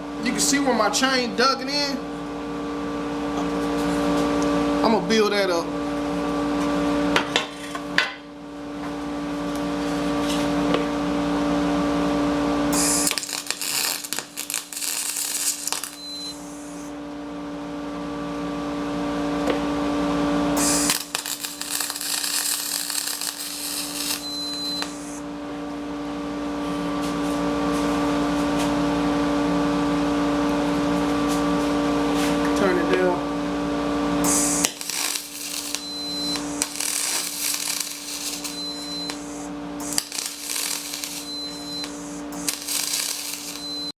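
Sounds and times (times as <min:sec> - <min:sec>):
steady machine hum: 0:00.0 - 0:07.2, 0:07.8 - 0:43.9
crackling welding arc: 0:12.7 - 0:16.9, 0:20.6 - 0:25.2, 0:34.2 - 0:43.9.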